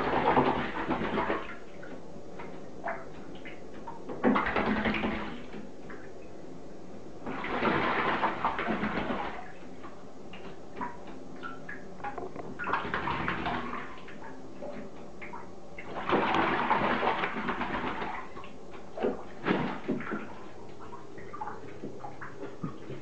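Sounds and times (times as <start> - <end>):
water drips and taps: 8.4 - 23.0
crow splashing in water: 15.9 - 18.3.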